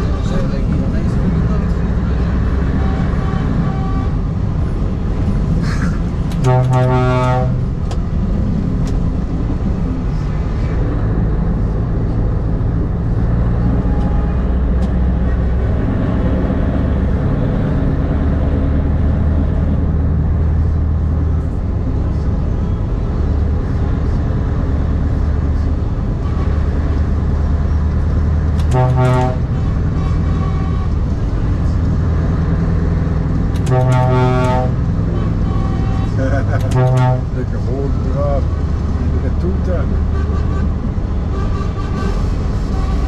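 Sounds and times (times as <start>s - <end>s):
truck horn blast: 2.6s - 4.3s, 6.3s - 7.8s, 28.6s - 31.1s, 33.6s - 37.4s, 39.8s - 43.0s.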